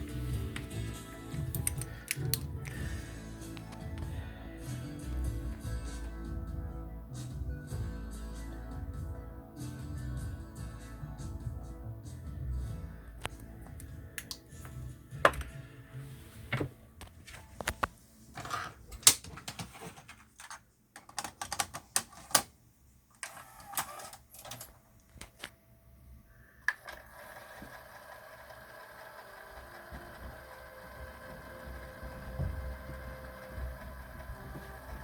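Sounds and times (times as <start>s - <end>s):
tape transport whirring: 26.7s - 35.0s
tape transport clicking and clunking: 29.6s - 35.0s.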